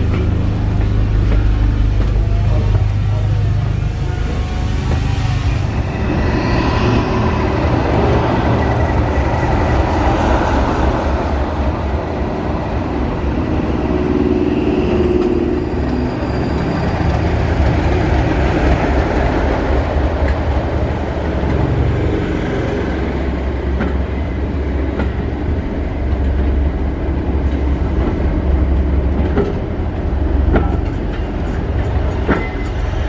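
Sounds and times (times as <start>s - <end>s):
diesel locomotive drone: 0.0s - 33.0s
train wheels rumbling on track: 0.0s - 33.0s
wheels clicking over rail joints: 23.3s - 33.0s.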